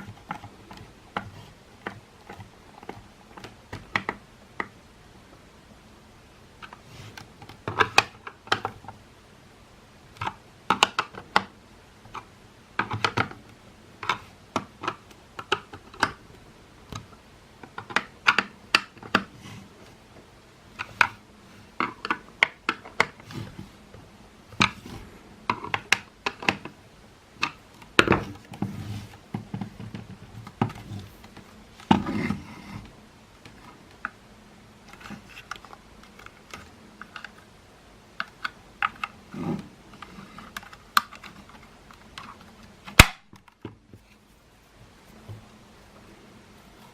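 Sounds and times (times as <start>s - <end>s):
plastic parts clicking and knocking: 0.0s - 4.8s, 6.6s - 9.0s, 10.1s - 19.4s, 20.2s - 23.6s, 24.5s - 26.8s, 27.4s - 34.2s, 34.8s - 44.0s.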